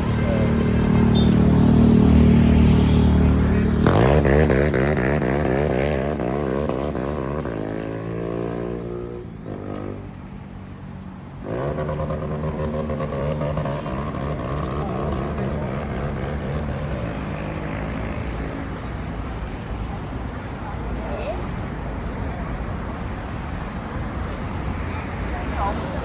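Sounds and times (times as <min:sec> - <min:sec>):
vehicle engine running: 0:00.0 - 0:07.8, 0:10.0 - 0:20.2
second engine: 0:00.0 - 0:10.2, 0:11.0 - 0:19.6.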